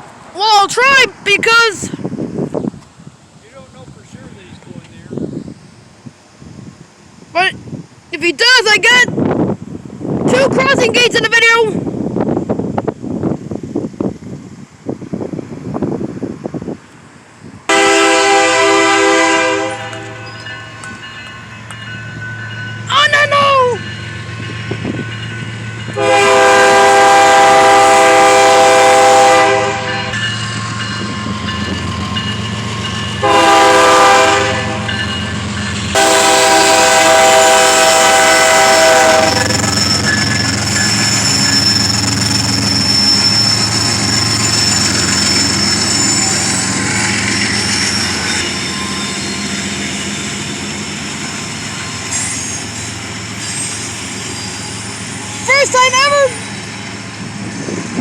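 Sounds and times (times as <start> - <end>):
locomotive horn blasts: 17.7 - 20.3, 26.0 - 30.2, 33.2 - 35.0, 35.9 - 39.7.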